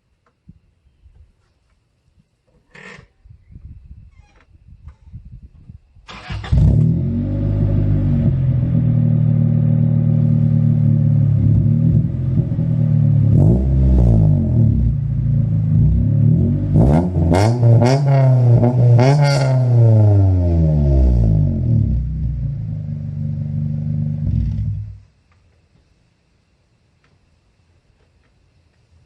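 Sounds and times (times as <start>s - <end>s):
car engine idling and revving: 6.5s - 25.1s.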